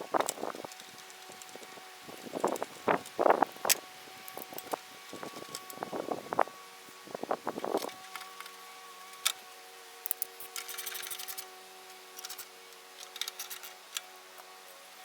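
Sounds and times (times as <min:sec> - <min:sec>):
steady background hum: 0:00.0 - 0:15.0
hand tools clicking on metal parts: 0:00.2 - 0:05.8, 0:10.0 - 0:11.5, 0:12.1 - 0:14.5.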